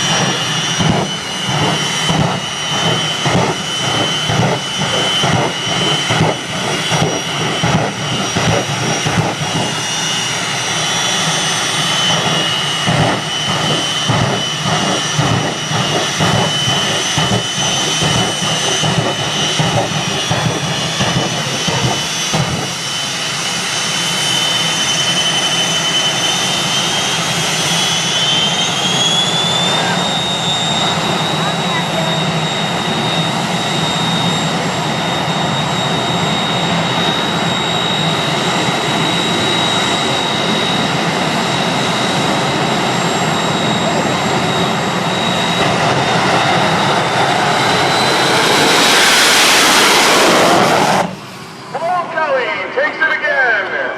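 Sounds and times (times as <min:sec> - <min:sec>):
jet engine whine and rumble: 0:00.0 - 0:53.9.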